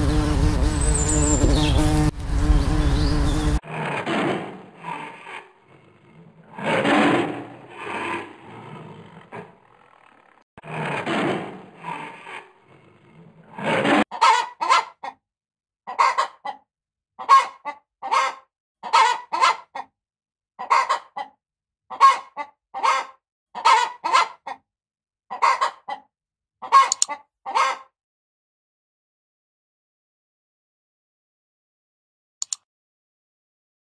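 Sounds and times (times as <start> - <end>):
poultry calling: 0.8 - 3.9, 17.2 - 19.9, 21.9 - 24.6, 25.3 - 26.0, 26.6 - 27.9.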